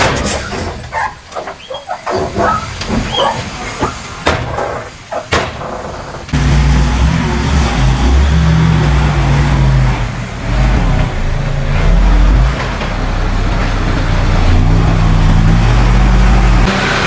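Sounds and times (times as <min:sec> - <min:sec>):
diesel engine revving under load: 0:06.3 - 0:17.0.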